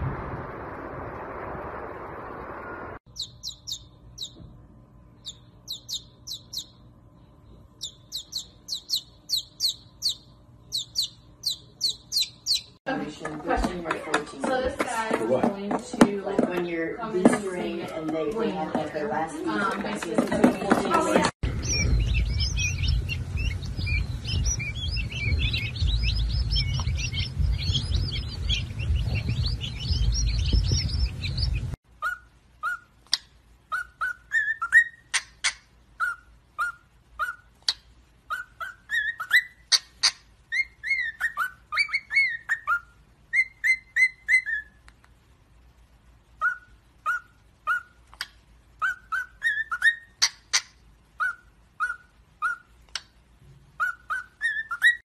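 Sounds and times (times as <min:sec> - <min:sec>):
low rumble: 0:00.0 - 0:03.0, 0:21.4 - 0:31.8
quail chicks peeping: 0:03.1 - 0:04.5, 0:05.2 - 0:13.7, 0:19.5 - 0:44.8, 0:46.4 - 0:53.1, 0:53.8 - 0:55.0
cockatiels whistling: 0:03.2 - 0:04.5, 0:05.2 - 0:06.8, 0:07.8 - 0:12.8, 0:21.6 - 0:44.8, 0:46.4 - 0:53.1, 0:53.8 - 0:55.0.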